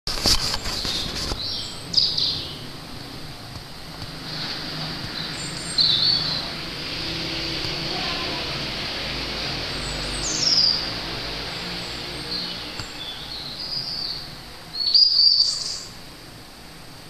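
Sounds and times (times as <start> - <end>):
bird high-pitched calls: 5.1 - 6.6, 12.3 - 16.0.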